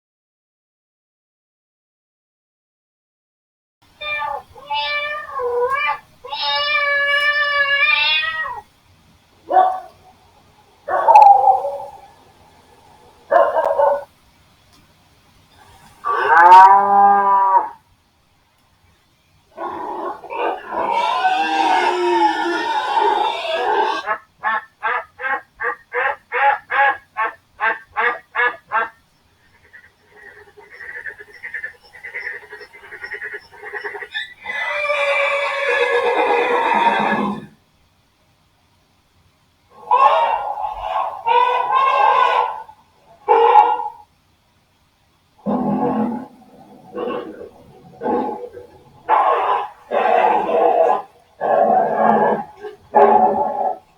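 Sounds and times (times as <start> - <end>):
cat meowing: 4.0 - 8.7
frog croaking: 9.4 - 14.1, 19.5 - 37.6, 45.4 - 53.9.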